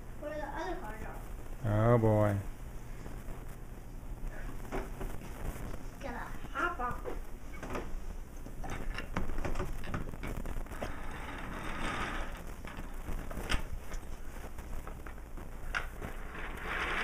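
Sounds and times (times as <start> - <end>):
toy trains rattling on track: 16.2 - 17.0.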